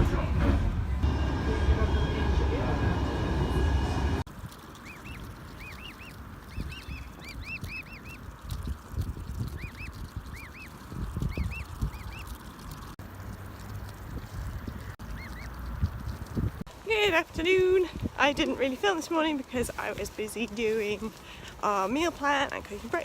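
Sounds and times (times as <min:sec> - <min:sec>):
goslings peeping: 0:04.4 - 0:16.6.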